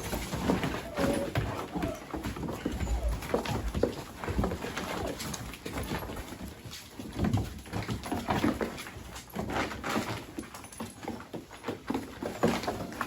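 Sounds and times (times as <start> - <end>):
puppies growling and whimpering: 0.0 - 5.3.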